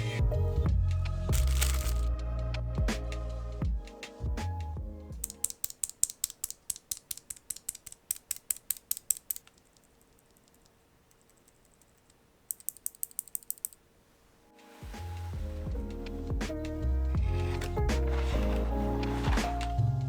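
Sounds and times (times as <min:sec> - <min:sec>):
mechanical keyboard typing: 0:05.2 - 0:13.8.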